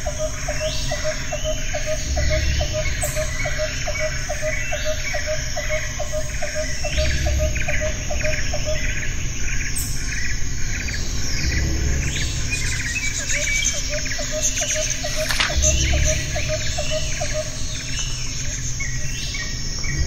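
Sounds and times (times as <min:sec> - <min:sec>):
birds chirping: 0:00.0 - 0:20.0
insects buzzing: 0:00.0 - 0:20.0
low pulsing call: 0:11.5 - 0:19.0.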